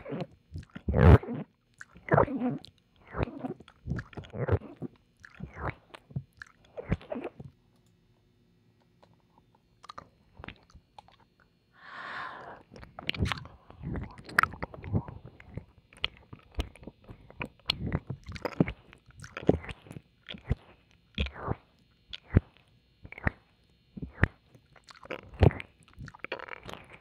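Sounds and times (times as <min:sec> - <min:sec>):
wet licks and mouth clicks: 0:00.6 - 0:00.9, 0:01.7 - 0:07.2, 0:12.8 - 0:27.0
breathy exhale: 0:11.8 - 0:12.7.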